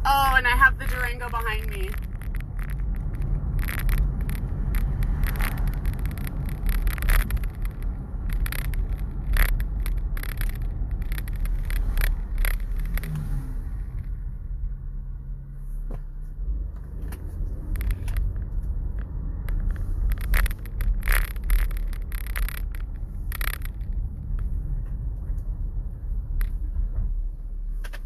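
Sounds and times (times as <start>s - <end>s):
car engine and road rumble: 0.0s - 28.0s
short clicks and scrapes: 0.8s - 14.2s, 17.0s - 25.5s.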